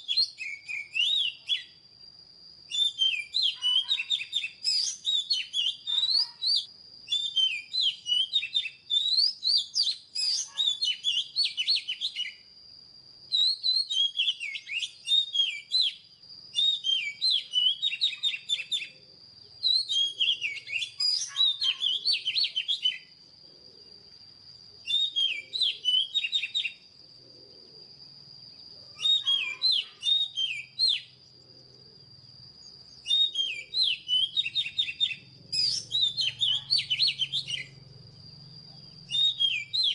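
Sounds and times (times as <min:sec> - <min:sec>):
magpie-robin whistled song: 0:00.0 - 0:01.8, 0:02.6 - 0:12.5, 0:13.3 - 0:23.2, 0:24.8 - 0:26.9, 0:28.8 - 0:31.2, 0:32.8 - 0:37.8, 0:38.8 - 0:39.9
steady high-pitched whine: 0:30.2 - 0:39.9.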